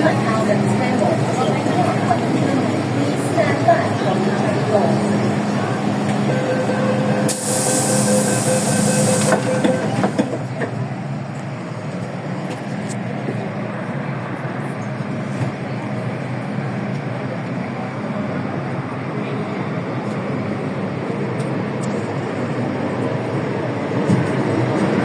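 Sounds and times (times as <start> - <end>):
train hum: 0.0 - 25.0
air hiss: 7.3 - 9.9.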